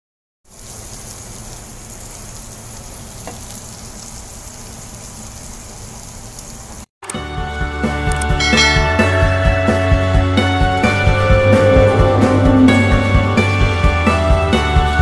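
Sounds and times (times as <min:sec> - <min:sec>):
chicken sizzling in oil: 0:00.5 - 0:06.9.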